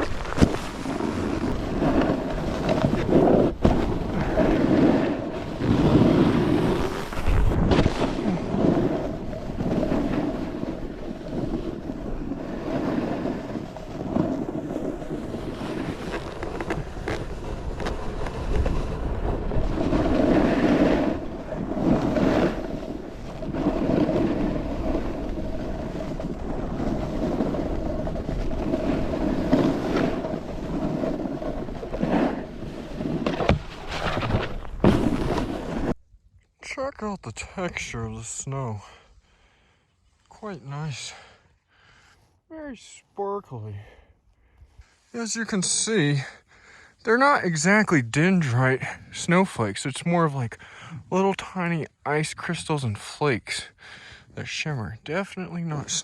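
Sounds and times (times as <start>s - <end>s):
snowboard edge scraping snow: 0.0s - 36.0s
wind noise on microphone: 0.0s - 36.4s.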